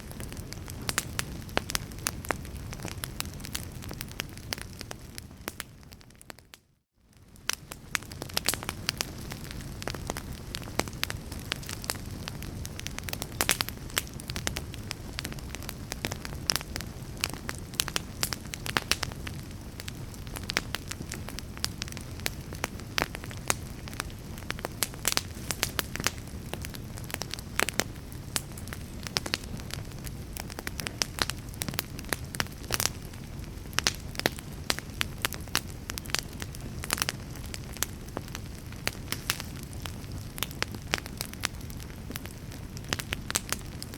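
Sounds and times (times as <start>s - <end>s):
fire crackling and popping: 0.0s - 43.9s.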